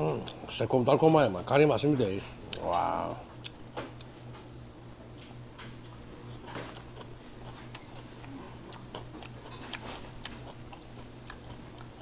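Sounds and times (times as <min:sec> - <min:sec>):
steady low hum: 0:00.0 - 0:12.0
chewing with clicks and smacks: 0:00.2 - 0:00.4, 0:02.5 - 0:04.5, 0:05.2 - 0:12.0.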